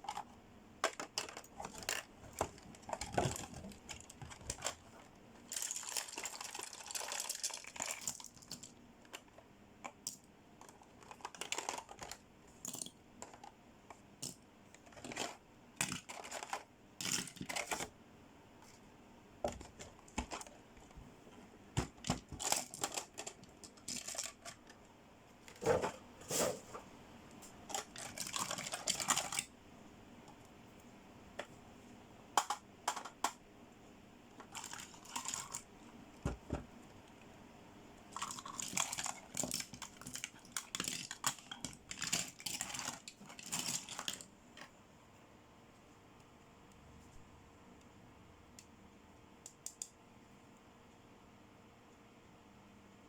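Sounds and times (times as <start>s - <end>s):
plastic toys clicking and tapping: 0.0s - 18.0s, 19.4s - 21.0s, 21.8s - 25.6s, 27.6s - 29.5s, 32.4s - 33.4s, 34.4s - 36.6s, 38.1s - 44.7s
packaging crinkling and rustling: 0.9s - 9.2s, 10.6s - 12.2s, 14.8s - 17.9s, 21.9s - 24.9s, 27.7s - 29.5s, 34.5s - 35.7s, 38.2s - 44.3s.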